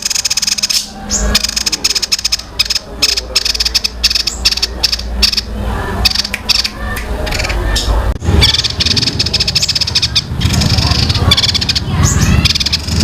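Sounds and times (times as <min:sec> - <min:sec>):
songbird singing rapid notes: 0:00.0 - 0:05.5, 0:08.4 - 0:13.0
steady low hum: 0:00.0 - 0:13.0.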